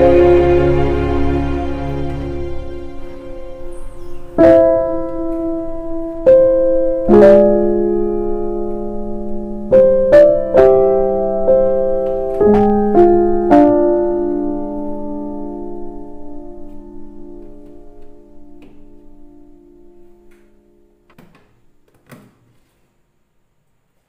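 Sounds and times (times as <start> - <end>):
piano notes and chords: 0.0 - 22.2.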